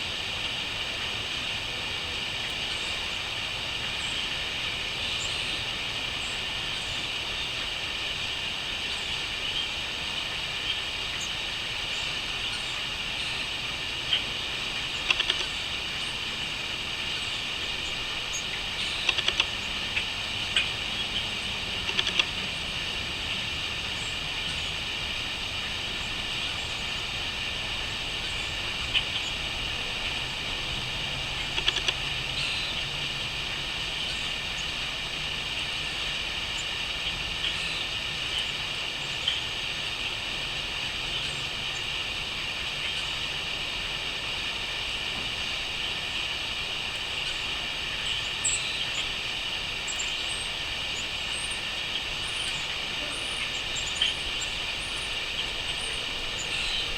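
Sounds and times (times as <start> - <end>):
crickets chirping: 44.0 - 56.9.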